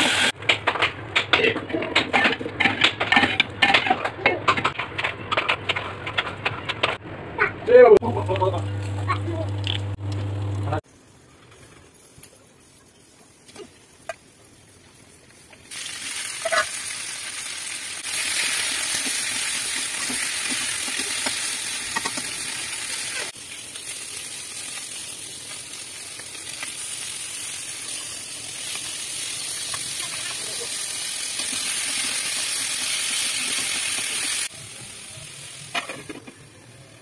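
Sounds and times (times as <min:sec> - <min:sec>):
vegetables sizzling in hot oil: 0:00.0 - 0:00.3, 0:13.4 - 0:37.0.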